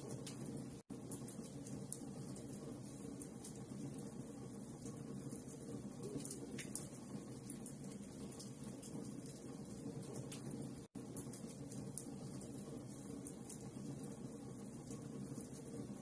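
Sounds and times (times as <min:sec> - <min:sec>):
fire crackles and snaps: 0:00.0 - 0:16.0
low fire burning: 0:00.0 - 0:16.0.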